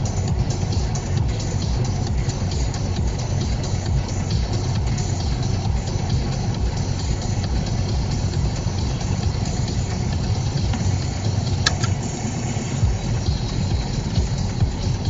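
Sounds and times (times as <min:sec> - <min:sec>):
car engine rumble inside cabin: 0:00.0 - 0:15.0
short click: 0:11.6 - 0:12.0.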